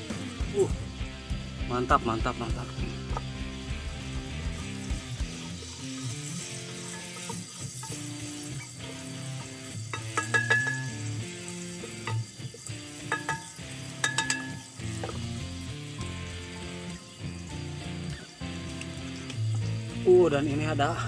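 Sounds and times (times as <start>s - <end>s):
food sizzling in hot oil: 0.0s - 21.0s
spoon clinking on pot wall: 9.9s - 11.1s, 13.0s - 15.2s.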